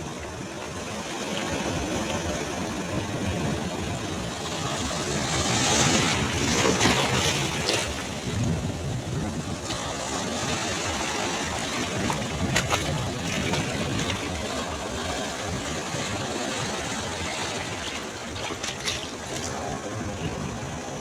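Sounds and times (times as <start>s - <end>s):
sea waves washing on shore: 0.1s - 21.0s.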